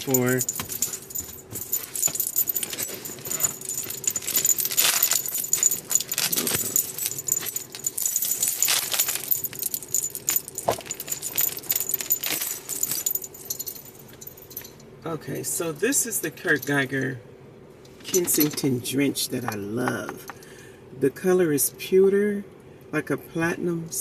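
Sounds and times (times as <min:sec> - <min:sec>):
metal chain jangling: 0:00.0 - 0:14.8, 0:17.9 - 0:18.7.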